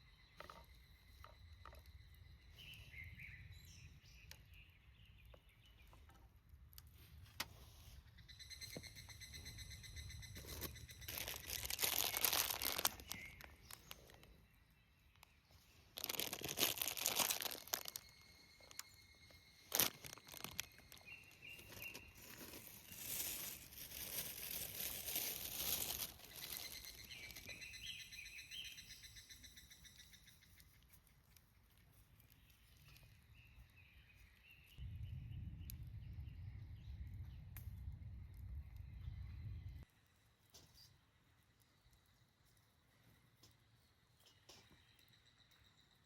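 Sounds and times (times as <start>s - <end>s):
faint birds chirping: 0.0s - 46.0s
crinkling and rustling: 10.4s - 14.3s, 15.1s - 18.8s, 19.6s - 27.6s
low rumble: 34.8s - 39.8s.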